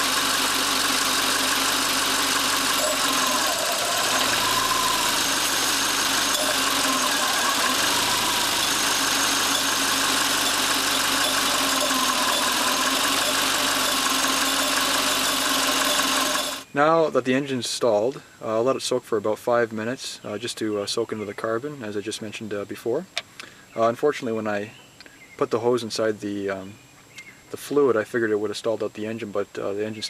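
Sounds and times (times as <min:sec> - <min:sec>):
car engine idling: 0:00.0 - 0:16.6.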